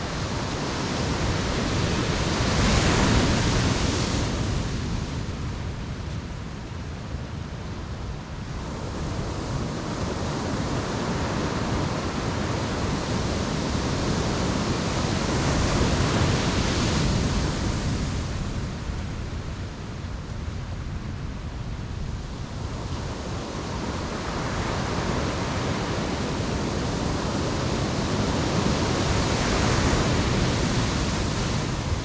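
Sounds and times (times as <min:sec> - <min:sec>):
ocean waves breaking: 0:23.2 - 0:32.0.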